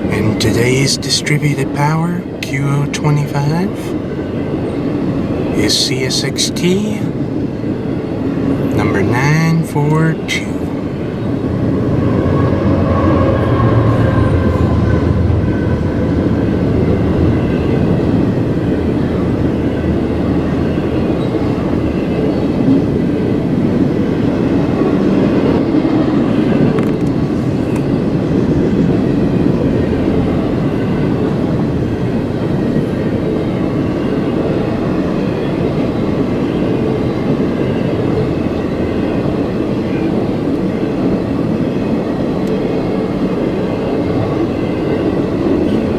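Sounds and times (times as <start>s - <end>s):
freight train cars rumbling and rattling: 0.0s - 45.9s
deep locomotive rumble: 10.2s - 45.9s.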